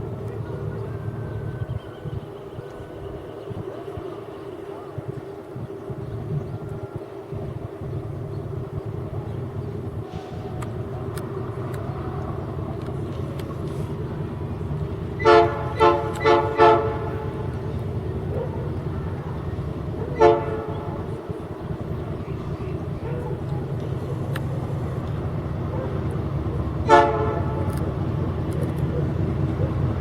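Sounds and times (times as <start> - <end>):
diesel locomotive running: 0.0 - 30.0
locomotive air horn blasts: 15.1 - 17.7, 20.0 - 21.2, 26.8 - 28.0.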